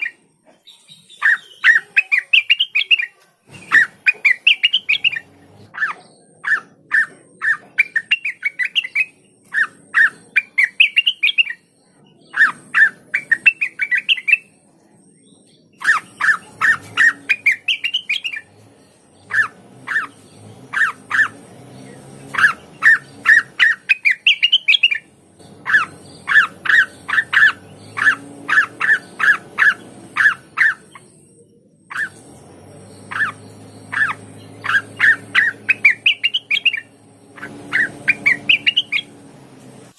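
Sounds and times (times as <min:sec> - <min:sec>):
bird singing sharp notes: 0:00.0 - 0:39.9.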